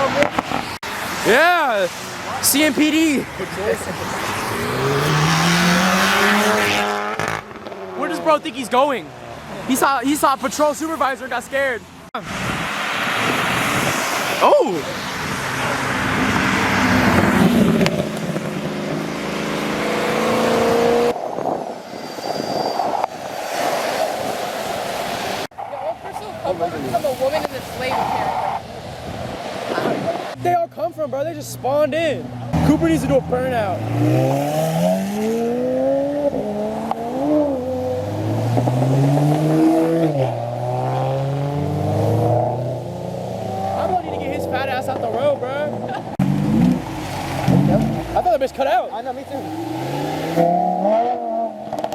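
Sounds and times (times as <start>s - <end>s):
street noise: 0.0s - 51.9s
car engine accelerating hard: 2.2s - 8.4s, 12.3s - 21.6s, 32.4s - 51.9s.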